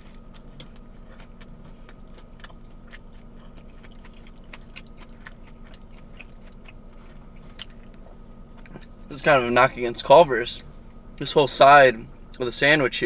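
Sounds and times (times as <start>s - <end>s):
person chewing crispy food: 0.0s - 9.4s
faint hum: 0.0s - 13.0s.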